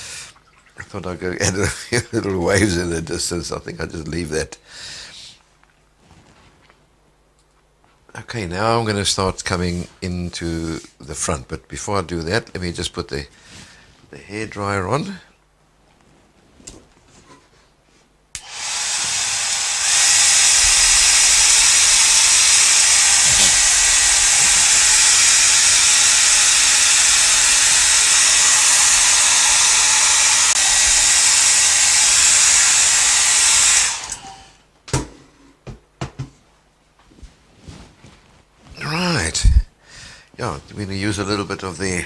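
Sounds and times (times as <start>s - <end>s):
hairdryer blowing: 18.4s - 34.6s.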